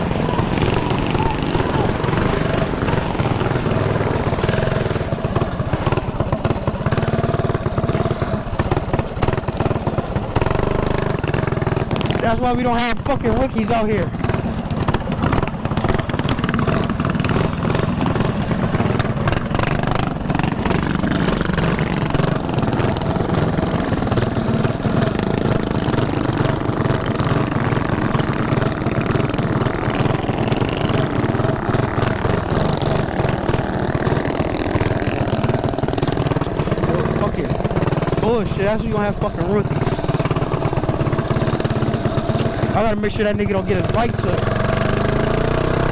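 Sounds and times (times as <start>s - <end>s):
small engine running: 0.0s - 45.9s
rough rattle: 13.0s - 45.8s.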